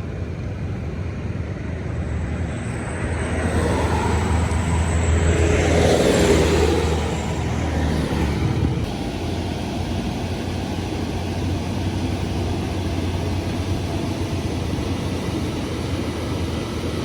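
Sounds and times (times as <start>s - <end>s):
low engine rumble: 0.0s - 17.0s
road noise: 0.0s - 17.0s
vehicle passing: 1.5s - 9.4s.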